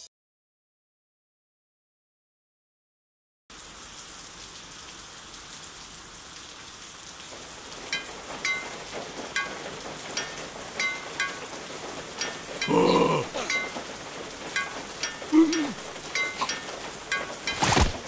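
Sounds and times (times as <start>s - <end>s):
rain on hard ground: 3.5s - 18.0s
water drops plinking: 7.9s - 9.6s, 10.2s - 11.5s, 12.2s - 18.0s.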